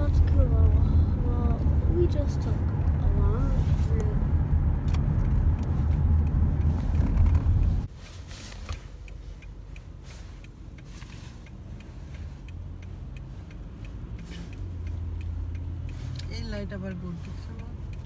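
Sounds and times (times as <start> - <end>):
car engine rumble in cabin: 0.0 - 18.0
faint clicks: 8.5 - 18.0.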